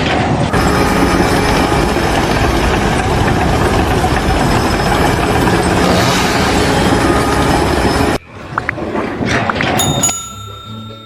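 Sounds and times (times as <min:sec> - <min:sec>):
heavy engine running: 0:00.2 - 0:08.2.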